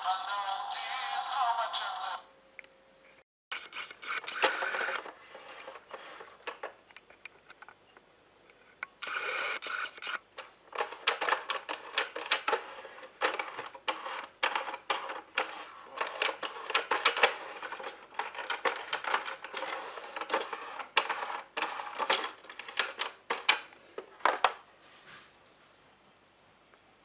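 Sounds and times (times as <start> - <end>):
plastic toys clicking and rattling: 9.0 - 24.6.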